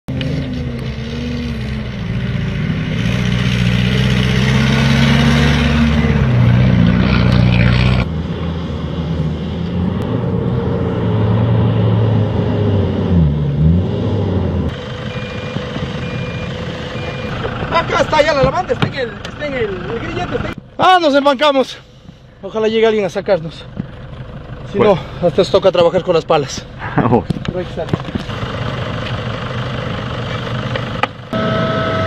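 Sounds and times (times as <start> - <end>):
off-road engines revving hard: 0.1 - 20.6.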